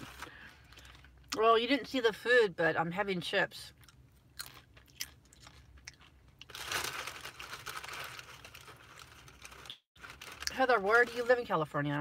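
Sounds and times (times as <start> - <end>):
chips crunching: 3.8 - 10.6
crinkling rustle: 6.4 - 11.6.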